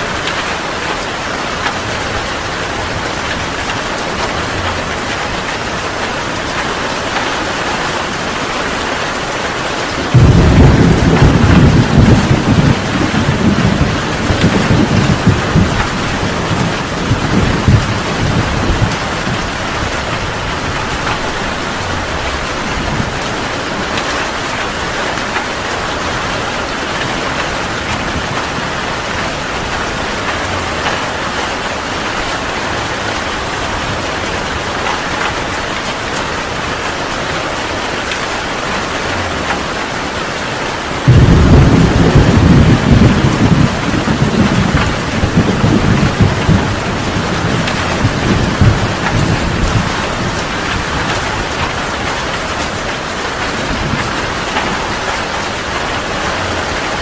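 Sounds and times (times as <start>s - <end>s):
heavy rain hissing: 0.0s - 57.0s
thunder rumbling: 0.1s - 57.0s
loud thunder clap: 10.1s - 23.3s, 41.0s - 52.8s.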